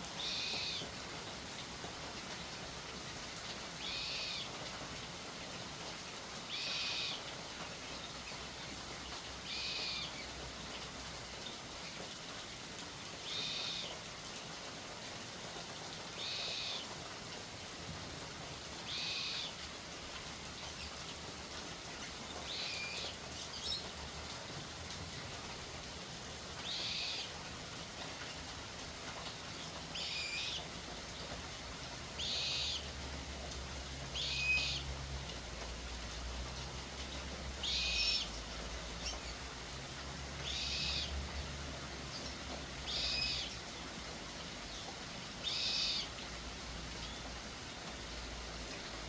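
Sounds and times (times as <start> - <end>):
bird calling: 32.2 - 32.9, 45.4 - 46.1.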